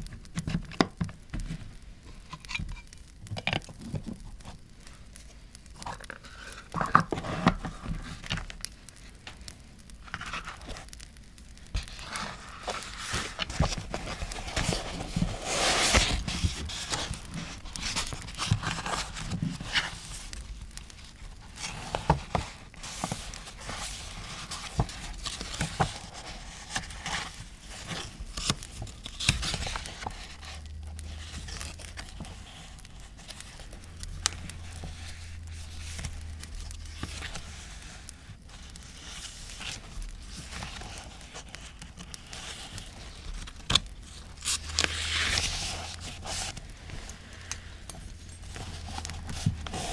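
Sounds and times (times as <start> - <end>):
paper tearing and crinkling: 11.7 - 47.5, 48.2 - 49.9.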